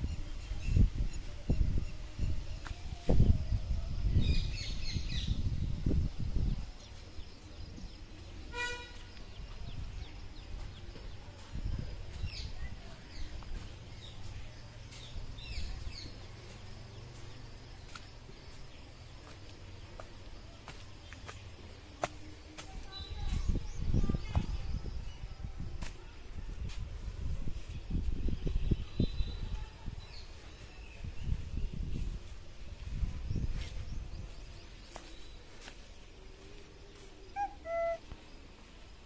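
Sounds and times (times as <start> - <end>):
wind buffeting microphone: 0.0 - 8.5, 9.2 - 18.6, 22.7 - 35.0
rural background: 0.0 - 39.0
birds chirping: 4.1 - 26.2, 27.6 - 39.0
clear bird call: 37.3 - 38.2.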